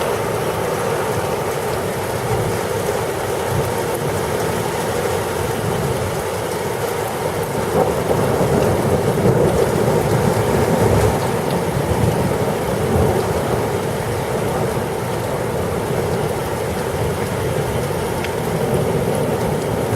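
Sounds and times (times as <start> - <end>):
heavy rain pouring: 0.0 - 19.9
low rumble of thunder: 7.5 - 17.1.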